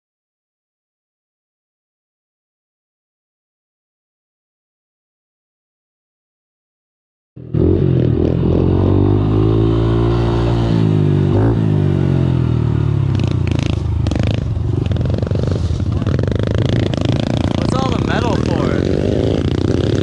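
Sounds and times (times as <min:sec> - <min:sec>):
pit bike engine running: 0:07.4 - 0:20.0.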